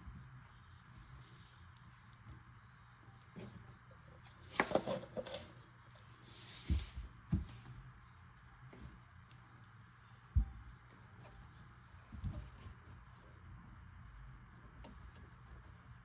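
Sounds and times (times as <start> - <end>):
parts clattering: 3.3 - 5.6
dull thumps: 10.3 - 11.4.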